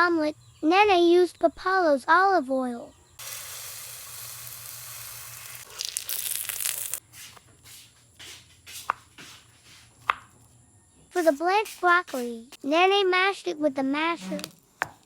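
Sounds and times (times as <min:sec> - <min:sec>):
omelette sizzling in a pan: 0:03.2 - 0:07.0.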